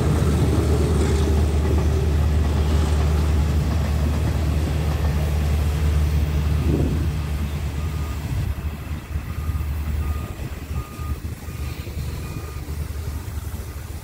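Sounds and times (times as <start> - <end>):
train rumbling past: 0.0 - 14.0
short electronic beeps: 7.2 - 12.8.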